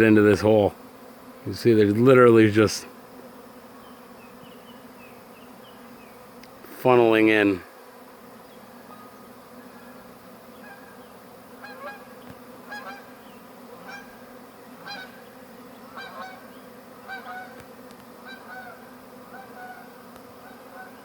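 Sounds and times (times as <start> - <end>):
bee swarm buzzing: 0.0 - 21.0
bird calling: 8.4 - 17.6, 18.2 - 21.0.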